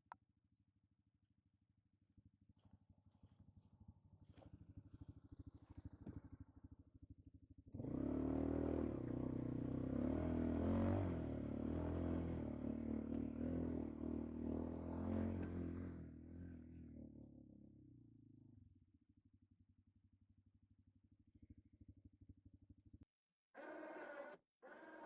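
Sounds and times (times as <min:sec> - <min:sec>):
atv engine revving: 0:07.6 - 0:18.4.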